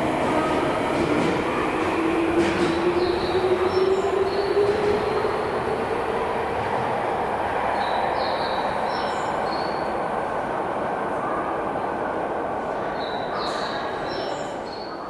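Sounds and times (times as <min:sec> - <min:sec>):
train wheel rumble: 0:00.0 - 0:11.4.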